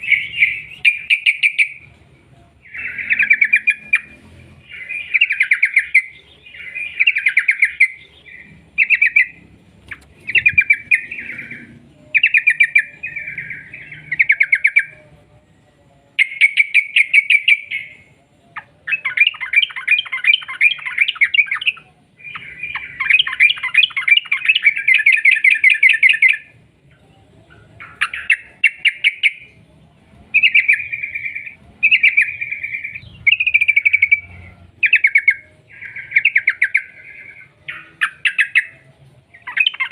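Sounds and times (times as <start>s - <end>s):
bulbul bubbling chatter song: 0.0s - 1.9s, 2.5s - 15.0s, 30.3s - 39.9s.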